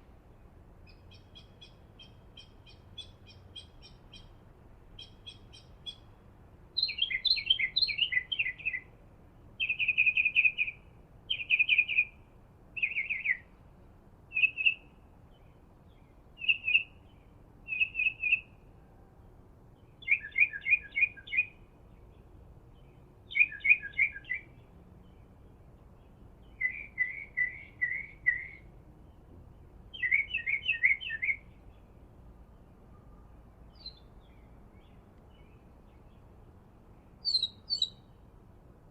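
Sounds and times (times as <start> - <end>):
songbird singing trilled phrases: 0.8 - 9.0, 9.6 - 12.2, 12.8 - 13.6, 14.3 - 18.6, 19.8 - 31.9, 32.5 - 36.3, 37.0 - 38.2.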